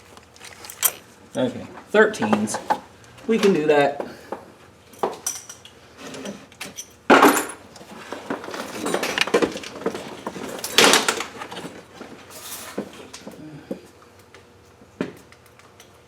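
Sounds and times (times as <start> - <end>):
metal hand tools clinking: 0.4 - 1.0.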